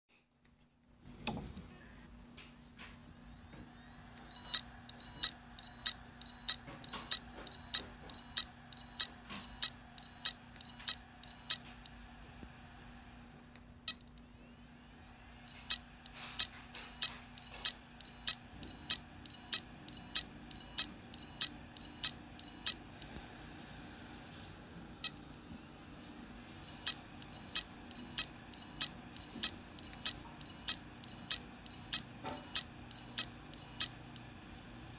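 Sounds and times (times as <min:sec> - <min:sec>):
steady low hum: 0:00.5 - 0:34.9
hard drive clicking: 0:03.4 - 0:12.6, 0:15.4 - 0:23.2, 0:25.0 - 0:34.9.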